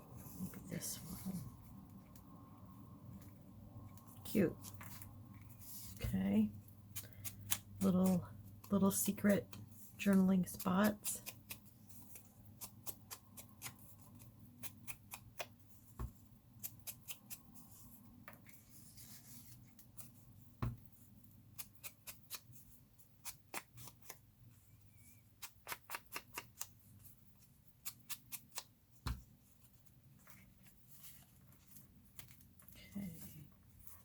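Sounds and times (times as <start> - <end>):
paper clicks and snips: 10.9 - 15.5, 25.4 - 26.8, 27.8 - 28.7.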